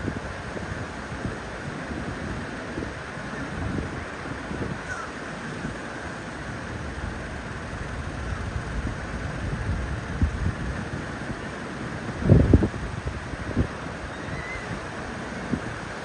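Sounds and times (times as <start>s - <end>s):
wind buffeting microphone: 6.5s - 16.0s.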